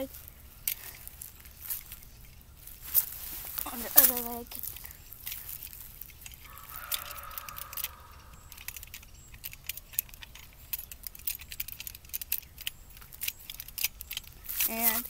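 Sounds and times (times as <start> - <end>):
toy cap gun clicking and rattling: 3.9 - 15.0.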